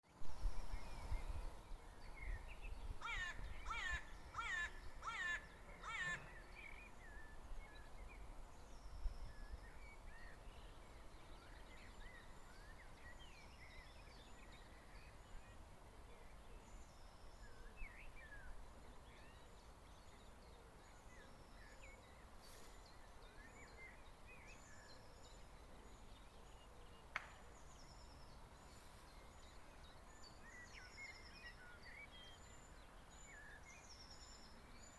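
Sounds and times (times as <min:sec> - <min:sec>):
low wind rumble: 0:00.1 - 0:05.0
crow cawing: 0:03.0 - 0:06.4.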